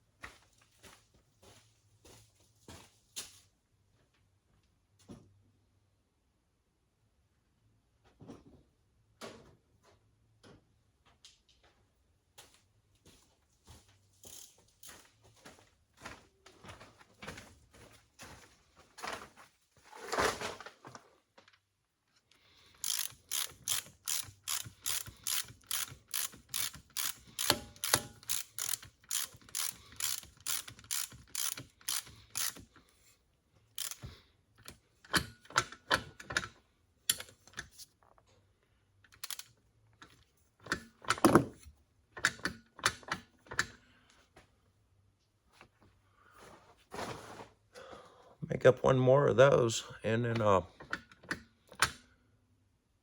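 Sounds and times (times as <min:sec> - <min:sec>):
ratchet wrench clicking: 0:14.2 - 0:14.5, 0:22.7 - 0:32.7, 0:33.8 - 0:35.6, 0:39.1 - 0:39.5.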